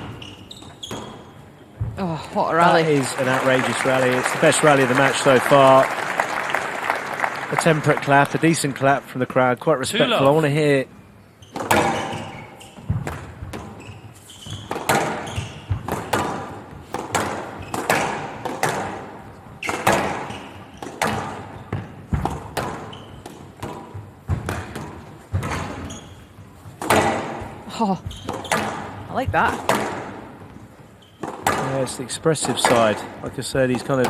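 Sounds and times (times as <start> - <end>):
squash ball striking racket and walls: 0.0 - 2.0, 11.4 - 34.0.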